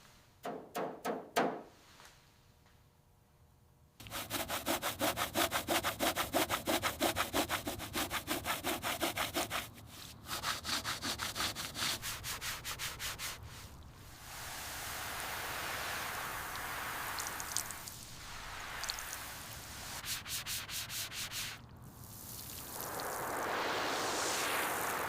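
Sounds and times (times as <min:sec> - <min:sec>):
hand rubbing on a surface: 0:07.4 - 0:13.8, 0:19.7 - 0:21.6.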